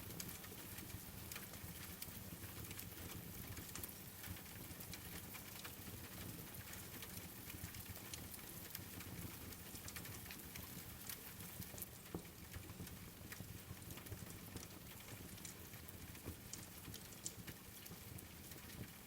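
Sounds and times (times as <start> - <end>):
steady rain: 0.0 - 19.0
wood fire crackling: 7.0 - 19.0.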